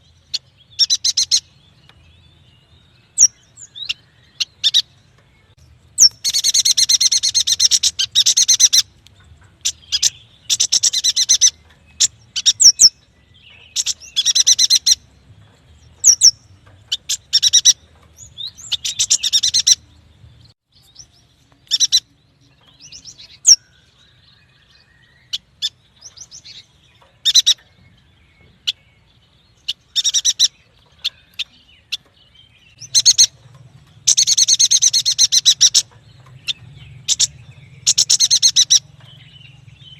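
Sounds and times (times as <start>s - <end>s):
bird chattering trills: 6.0s - 9.0s, 16.0s - 19.9s, 29.6s - 32.1s, 32.7s - 39.9s.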